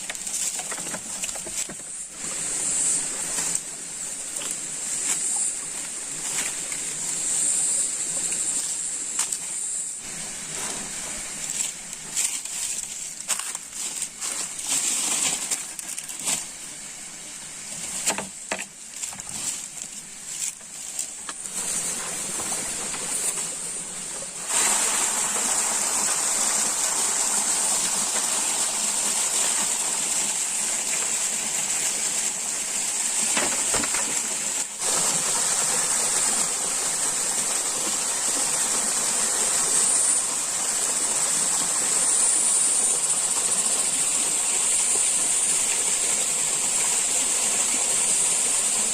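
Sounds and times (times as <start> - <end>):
stream rushing water: 21.1 - 48.9.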